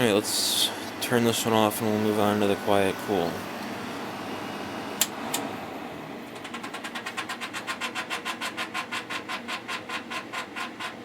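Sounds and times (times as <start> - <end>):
fan blade scraping rhythmically: 0.0 - 11.0
air conditioner switch clicks: 5.0 - 5.5.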